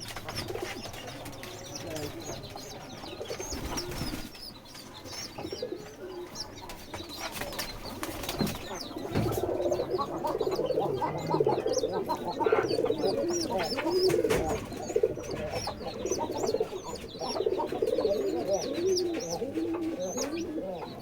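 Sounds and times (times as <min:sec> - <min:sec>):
pigeon chick squeaky peeps: 0:00.0 - 0:21.0.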